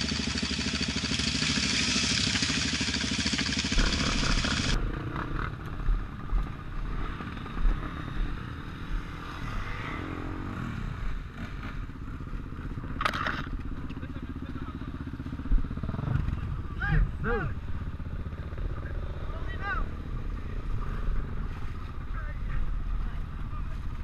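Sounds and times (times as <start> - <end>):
motorcycle engine running hard: 0.0 - 24.0
quieter engine running: 0.0 - 24.0.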